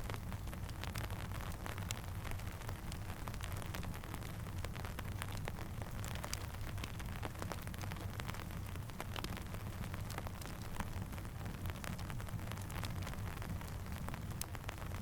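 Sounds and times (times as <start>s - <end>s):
campfire crackling: 0.0s - 15.0s
rain: 0.0s - 15.0s.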